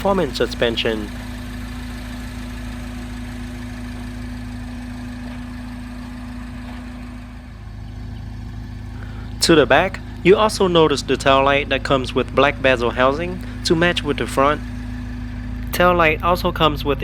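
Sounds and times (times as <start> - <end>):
low mechanical hum: 0.0 - 17.0
steady drone: 8.5 - 17.0.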